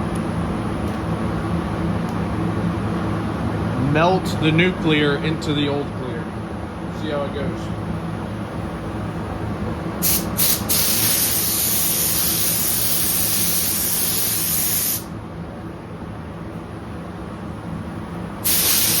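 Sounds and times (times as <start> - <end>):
steady low hum: 0.0 - 19.0
paint spray gun hissing: 10.0 - 15.1, 18.4 - 19.0.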